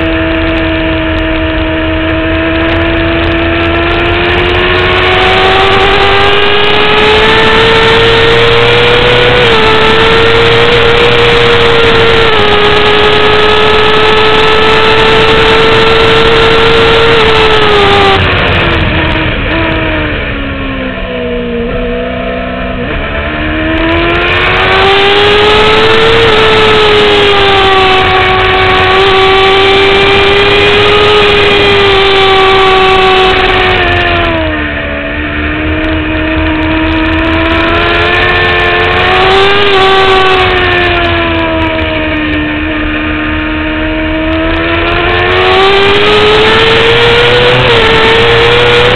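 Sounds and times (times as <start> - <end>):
motorcycle engine revving high: 0.0 - 48.9
wind rush: 16.9 - 48.9.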